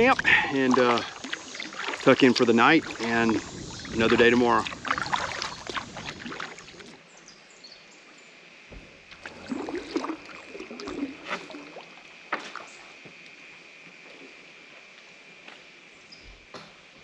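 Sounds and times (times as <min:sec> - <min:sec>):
paddle strokes splashing: 0:00.0 - 0:07.0, 0:09.1 - 0:13.0.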